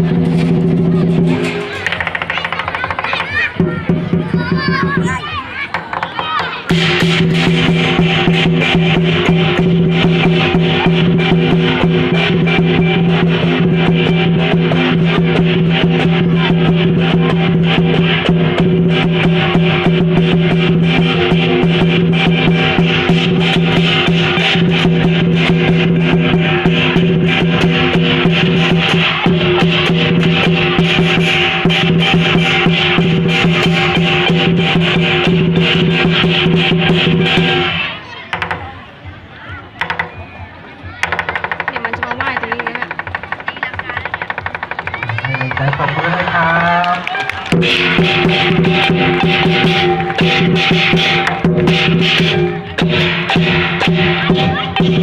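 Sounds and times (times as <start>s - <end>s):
cymbals clashing: 0.0s - 3.1s, 6.6s - 38.0s, 47.5s - 55.0s
drum beating steadily: 0.0s - 55.0s.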